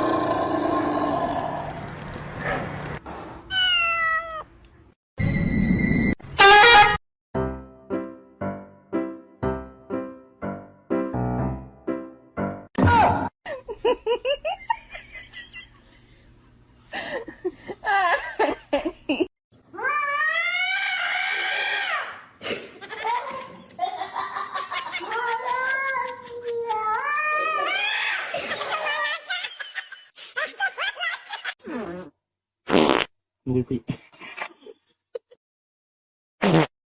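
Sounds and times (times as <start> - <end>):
cats meowing and yowling: 3.5 - 4.4
people laughing: 22.8 - 26.7, 28.3 - 31.6.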